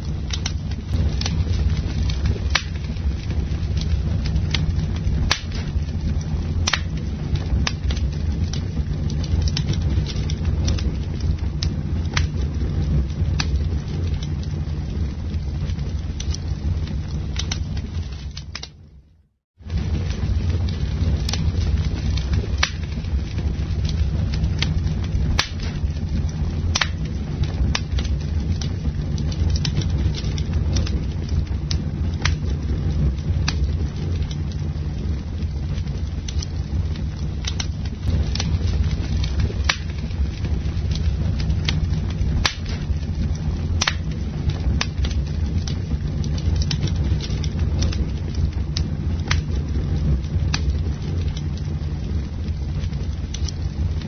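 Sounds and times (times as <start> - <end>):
campfire crackling and popping: 0.0 - 54.0
low rumble: 0.0 - 54.0.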